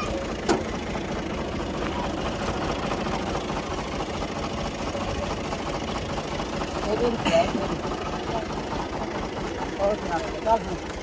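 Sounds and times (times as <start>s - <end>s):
combine harvester engine running: 0.0s - 11.0s.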